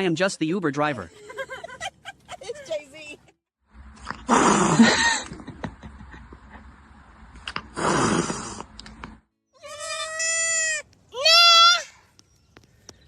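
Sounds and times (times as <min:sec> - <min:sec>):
goat bleating: 0:09.6 - 0:11.8.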